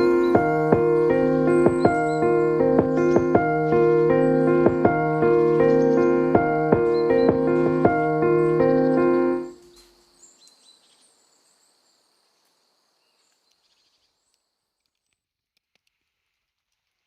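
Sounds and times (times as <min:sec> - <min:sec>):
piano music: 0:00.0 - 0:09.7
high-pitched chirping: 0:00.0 - 0:09.9.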